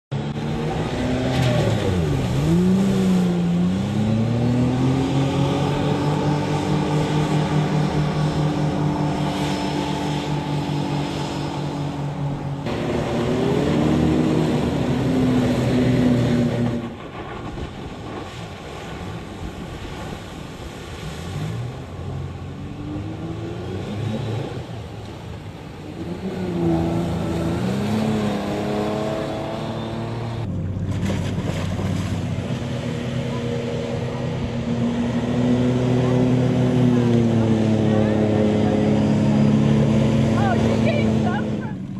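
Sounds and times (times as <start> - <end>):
car engine revving: 0.2 - 17.0, 25.8 - 41.7.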